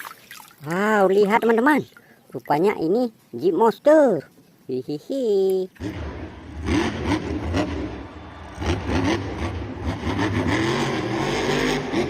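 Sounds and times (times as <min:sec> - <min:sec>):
car engine revving: 0:05.8 - 0:12.0.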